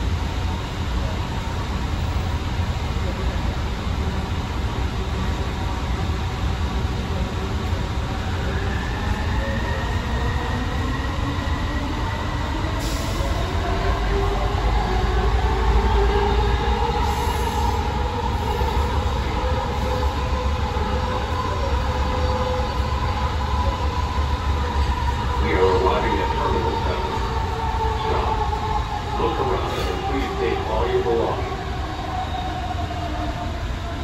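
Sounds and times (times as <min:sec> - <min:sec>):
train rumbling: 0:00.0 - 0:34.0
train wheels squealing: 0:29.2 - 0:30.6, 0:31.2 - 0:33.1.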